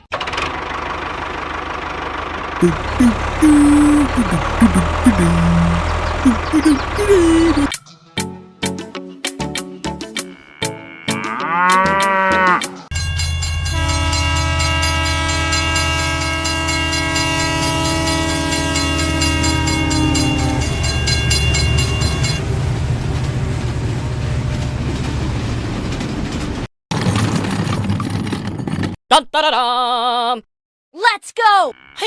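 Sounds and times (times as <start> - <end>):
train engine rumbling: 0.5 - 7.7, 12.9 - 26.7
cow mooing: 10.4 - 12.8, 13.8 - 21.0, 31.7 - 32.0
train horn blast: 13.6 - 22.4.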